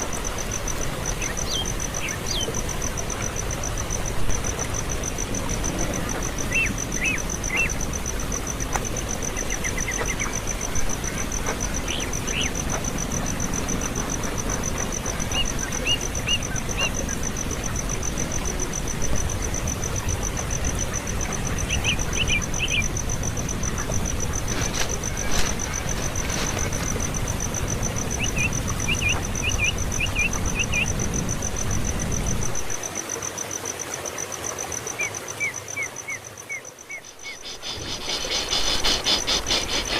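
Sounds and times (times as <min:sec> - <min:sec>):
high insect trill: 0:00.0 - 0:33.6, 0:34.4 - 0:39.9
nestling birds chirping: 0:23.8 - 0:27.3, 0:36.9 - 0:39.9.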